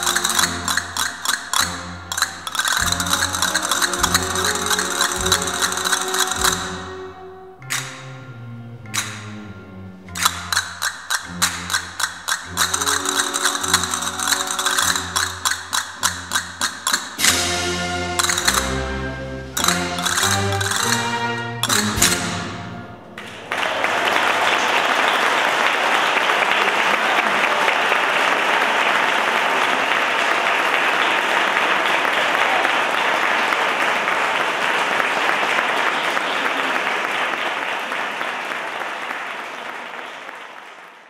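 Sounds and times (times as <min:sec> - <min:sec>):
audience applause: 0:00.0 - 0:06.9, 0:10.2 - 0:16.4, 0:19.6 - 0:22.1, 0:23.2 - 0:41.0
castanets and music: 0:00.0 - 0:23.1.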